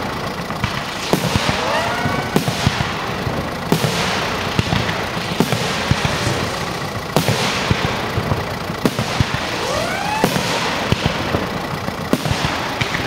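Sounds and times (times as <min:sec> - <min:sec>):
firework shells bursting: 0:00.0 - 0:13.0
fireworks crackling hiss: 0:00.0 - 0:13.0
rising firework whistle: 0:00.7 - 0:13.0.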